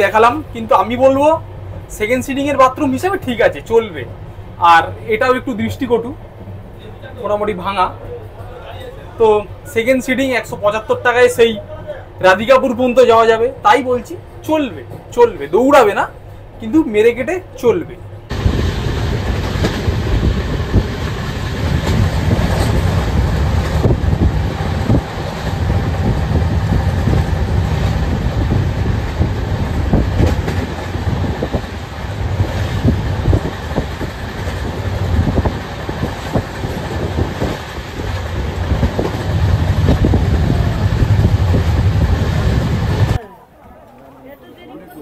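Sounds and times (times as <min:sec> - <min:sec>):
train wheels rumbling: 0:00.0 - 0:43.2
clacks and rattles: 0:19.3 - 0:40.3.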